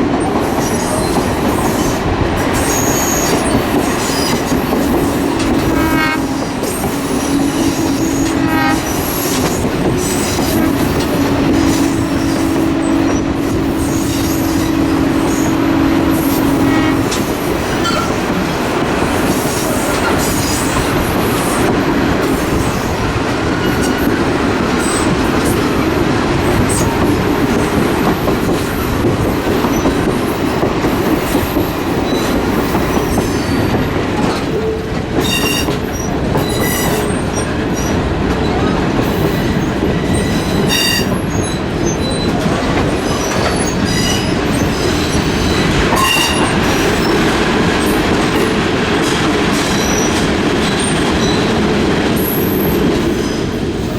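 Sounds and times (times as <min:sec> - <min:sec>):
train wheels on rails: 0:00.0 - 0:53.9
train horn blasts: 0:04.9 - 0:18.3, 0:40.4 - 0:41.2.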